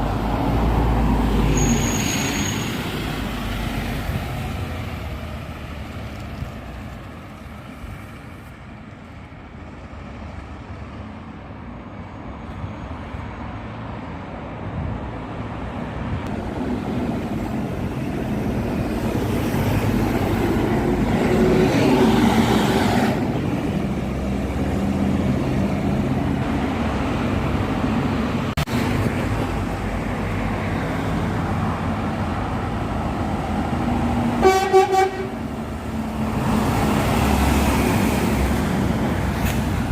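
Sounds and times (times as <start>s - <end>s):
short horn toot: 34.4s - 35.4s.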